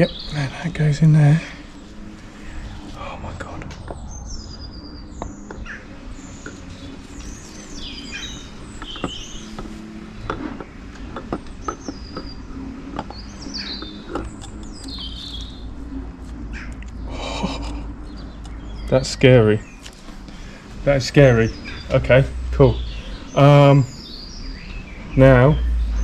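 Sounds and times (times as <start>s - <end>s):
small birds chirping: 0.0s - 26.0s
clicks and knocks of parts: 8.8s - 15.0s.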